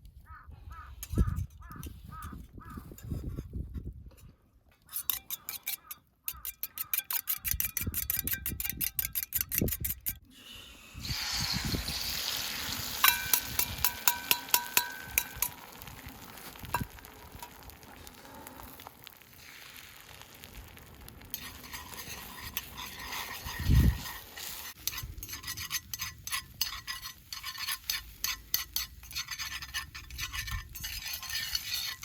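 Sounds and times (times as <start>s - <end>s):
metal utensil clinking on dish: 13.0s - 15.6s.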